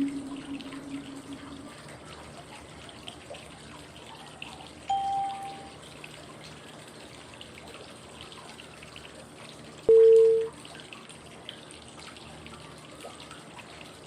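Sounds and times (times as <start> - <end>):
low electronic beep: 0.0 - 1.8, 4.9 - 5.7, 9.9 - 10.5
flowing water: 0.0 - 14.0.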